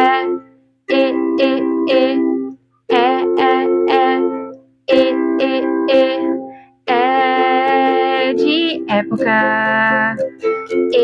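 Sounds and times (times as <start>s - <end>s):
person singing short vowel notes: 0.0s - 11.0s
light instrumental accompaniment: 7.7s - 11.0s.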